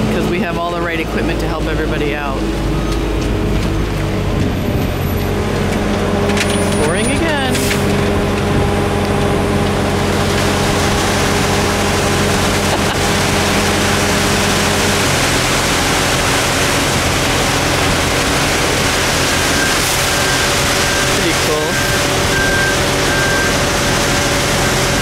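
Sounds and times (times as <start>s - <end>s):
diesel machinery running: 0.0s - 25.0s.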